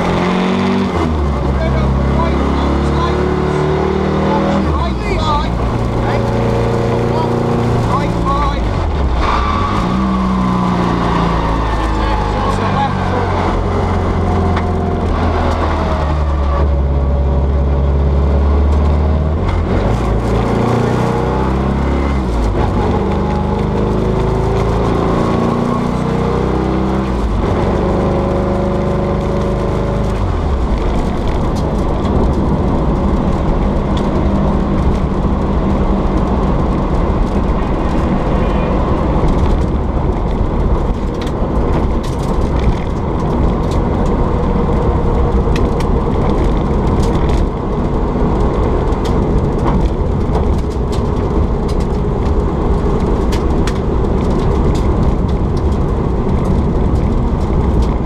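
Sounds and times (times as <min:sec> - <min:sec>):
car engine accelerating: 0:00.0 - 0:58.0
road noise: 0:00.0 - 0:58.0.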